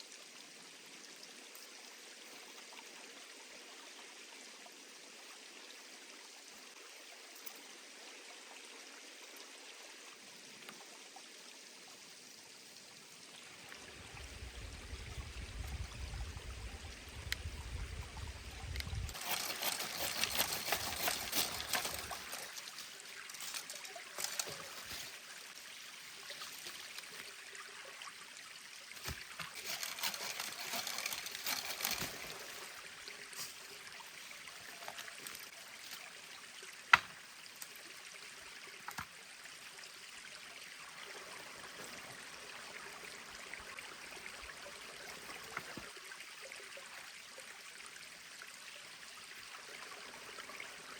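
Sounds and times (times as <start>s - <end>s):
mountain stream trickling: 0.0s - 50.9s
crackling rustle: 18.8s - 25.6s, 29.0s - 32.7s.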